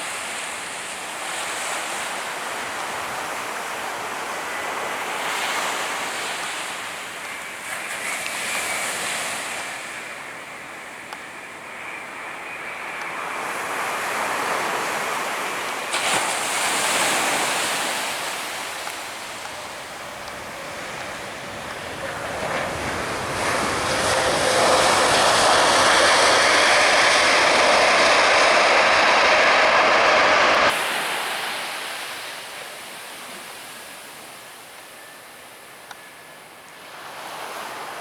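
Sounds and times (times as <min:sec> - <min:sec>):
waves washing on beach: 0:13.3 - 0:34.8
wind buffeting microphone: 0:16.2 - 0:30.8
steady rushing noise: 0:17.2 - 0:32.4.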